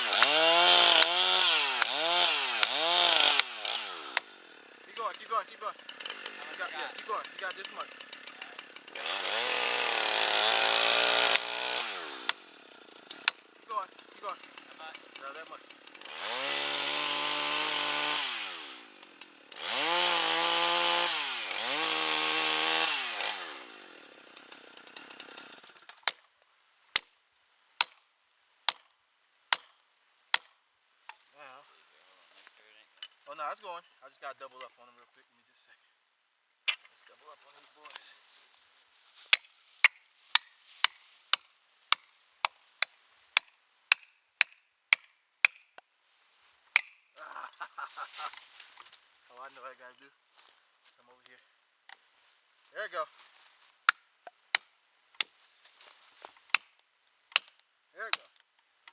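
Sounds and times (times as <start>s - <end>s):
chainsaw cutting at full throttle: 0.0s - 25.9s, 47.2s - 48.8s
ringing blows on felling wedges: 0.0s - 26.3s, 27.8s - 28.9s, 53.8s - 58.9s.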